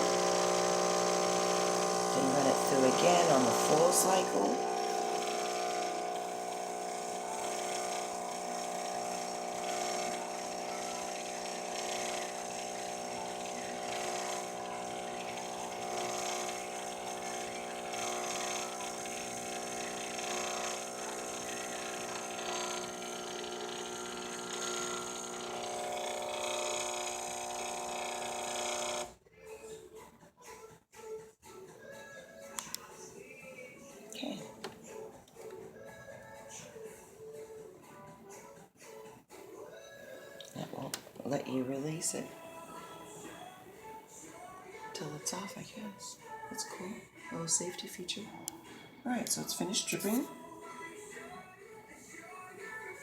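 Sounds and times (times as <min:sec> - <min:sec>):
coffee machine pump humming: 0:00.0 - 0:29.2.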